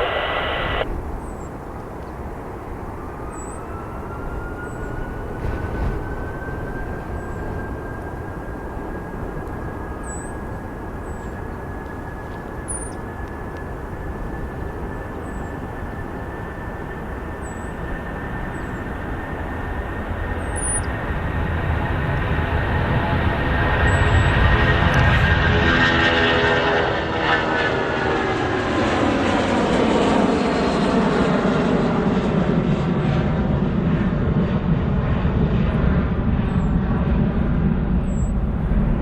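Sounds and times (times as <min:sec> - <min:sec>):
broad engine rumble: 0:00.0 - 0:03.3
airliner engines whining: 0:00.0 - 0:39.0.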